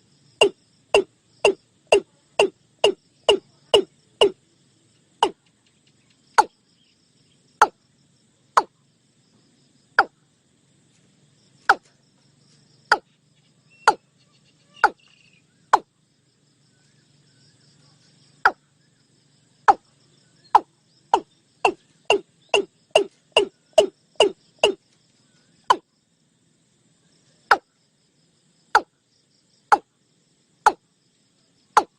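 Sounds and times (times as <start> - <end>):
faint high insect buzz: 0.0 - 31.9
bird calling sharp notes: 0.4 - 4.4, 13.7 - 15.8, 20.6 - 24.8.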